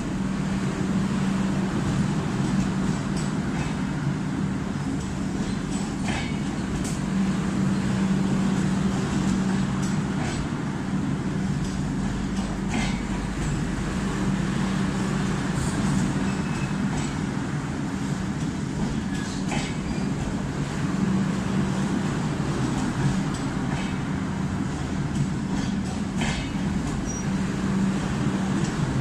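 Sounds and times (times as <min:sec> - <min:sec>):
train wheels rumbling on rails: 0:00.0 - 0:29.0
wheels clicking over rail joints: 0:11.4 - 0:13.7, 0:18.2 - 0:20.5, 0:24.8 - 0:27.3.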